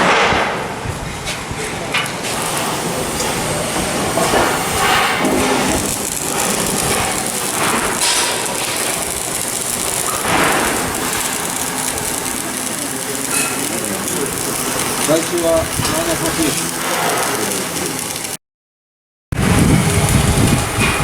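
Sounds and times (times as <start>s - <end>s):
hiss of machinery and tools: 1.9s - 18.4s.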